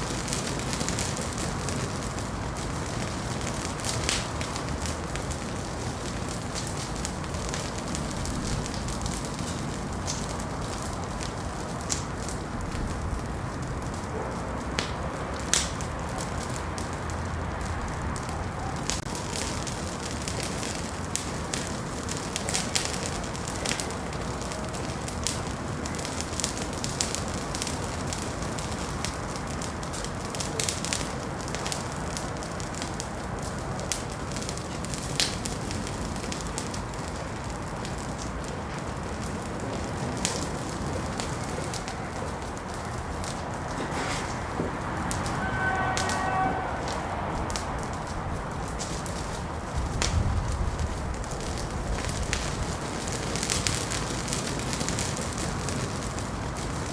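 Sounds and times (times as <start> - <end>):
wood fire crackling and popping: 0.0 - 56.9.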